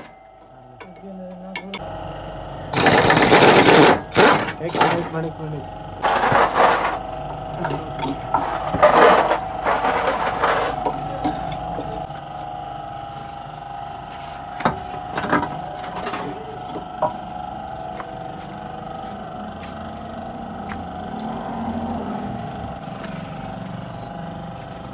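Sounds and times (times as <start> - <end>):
metal rattling and scraping: 2.8 - 5.2, 6.0 - 7.1, 8.1 - 11.5.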